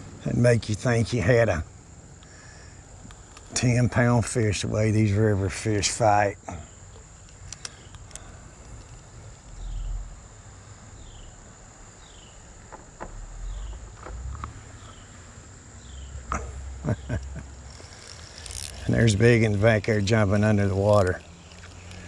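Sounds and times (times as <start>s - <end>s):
insects droning: 0.0s - 22.0s
low rumble bumps: 8.6s - 15.1s.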